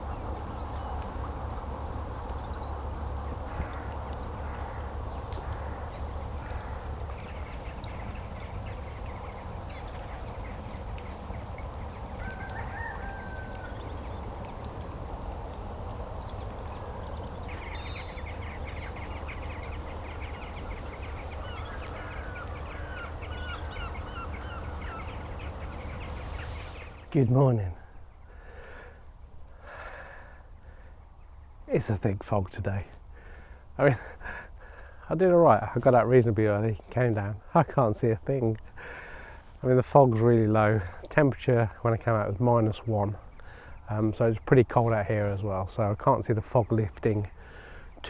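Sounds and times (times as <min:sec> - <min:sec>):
birds calling: 0:00.0 - 0:27.4.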